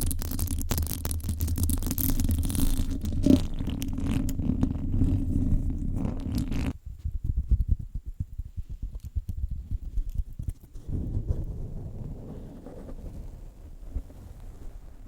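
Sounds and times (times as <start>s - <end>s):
fingers scratching on microphone: 0.0s - 15.0s
soft low rubs and thuds: 5.1s - 15.0s.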